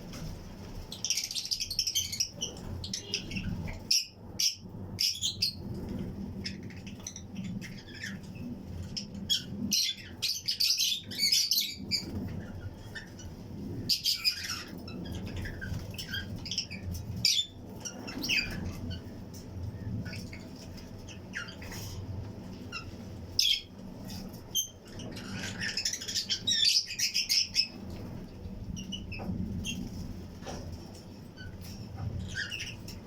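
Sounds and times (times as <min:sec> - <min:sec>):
steady low hum: 0:00.0 - 0:33.0
lovebirds chirping and squawking: 0:00.1 - 0:33.0.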